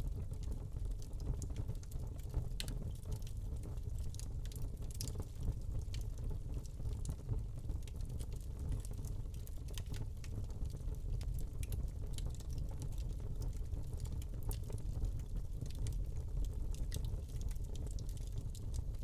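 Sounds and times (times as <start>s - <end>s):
log fire crackling: 0.1s - 19.0s.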